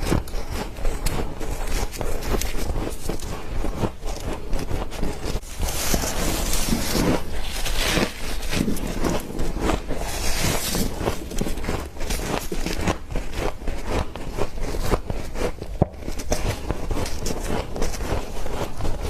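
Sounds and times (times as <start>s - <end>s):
crunching and chewing frost: 0.0s - 19.0s.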